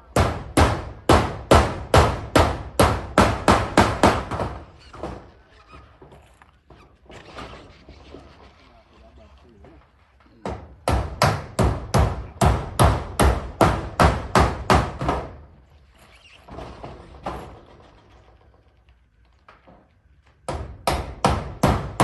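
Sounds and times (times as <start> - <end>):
hammer on metal roofing: 0.0 - 5.3, 10.4 - 15.6, 20.4 - 22.0.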